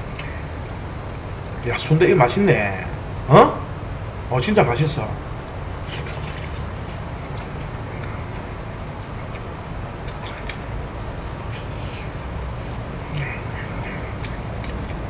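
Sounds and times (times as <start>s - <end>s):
man chewing: 0.0s - 0.8s, 5.4s - 15.0s
low background hum: 0.0s - 15.0s
wet mouth clicks: 10.0s - 10.6s, 13.1s - 15.0s.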